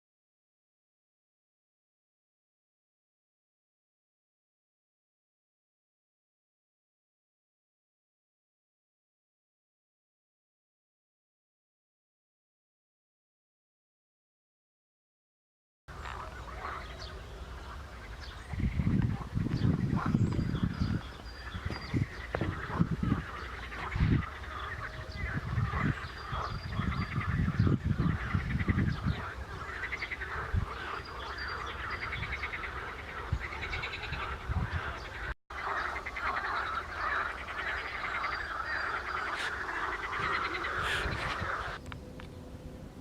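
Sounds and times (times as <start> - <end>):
frogs calling in chorus: 15.9 - 41.8.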